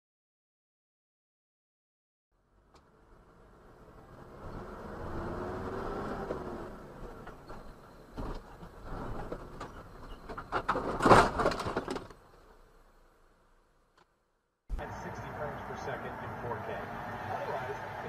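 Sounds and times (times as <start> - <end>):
vehicle engine whining: 2.4 - 11.0, 14.7 - 18.0
knocks and rattles: 7.0 - 12.2.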